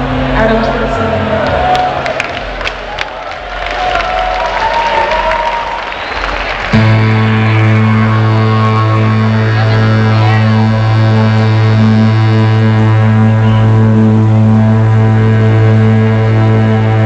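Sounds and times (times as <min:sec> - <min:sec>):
crowd noise: 0:00.0 - 0:17.0
deep bass note: 0:06.7 - 0:17.0
pulsing higher note: 0:06.7 - 0:17.0.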